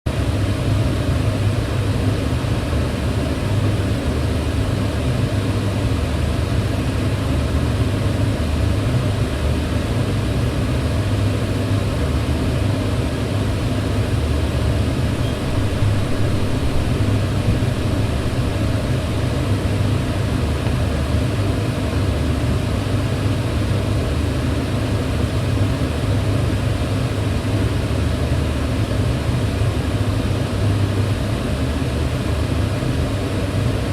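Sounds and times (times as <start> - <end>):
extractor fan running: 0.1 - 33.9.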